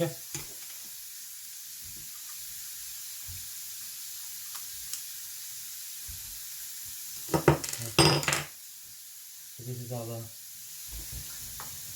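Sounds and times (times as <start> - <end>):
water running from tap: 0.0 - 11.9.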